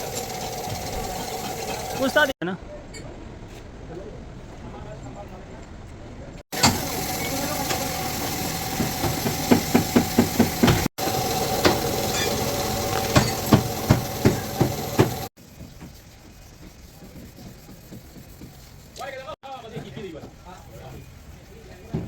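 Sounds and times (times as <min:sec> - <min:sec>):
steady hum: 0:00.0 - 0:02.4.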